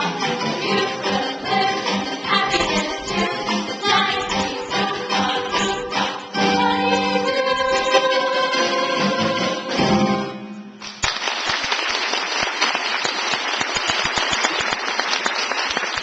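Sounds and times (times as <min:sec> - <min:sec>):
audience applause: 0:10.8 - 0:16.0.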